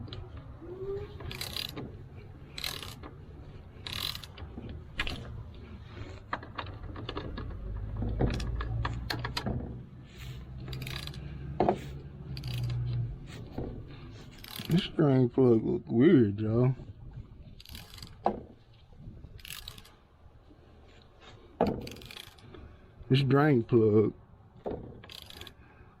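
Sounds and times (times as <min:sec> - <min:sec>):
socket wrench ratchet clicking: 0:01.2 - 0:01.8, 0:02.5 - 0:03.2, 0:03.8 - 0:05.2, 0:10.6 - 0:11.2, 0:12.3 - 0:12.8, 0:14.4 - 0:14.8, 0:19.4 - 0:20.0, 0:21.8 - 0:22.5, 0:25.0 - 0:25.6.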